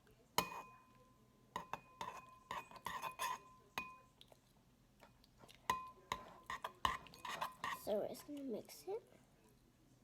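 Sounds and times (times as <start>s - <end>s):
utensil clinking against bowl: 1.6s - 4.1s, 5.6s - 7.9s.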